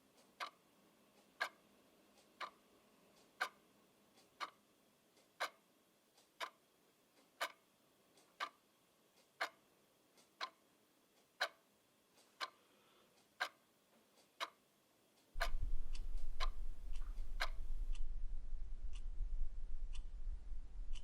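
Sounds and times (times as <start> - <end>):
mechanical clock ticking: 0.1 - 12.6, 13.2 - 18.3
steady low hum: 15.4 - 21.0.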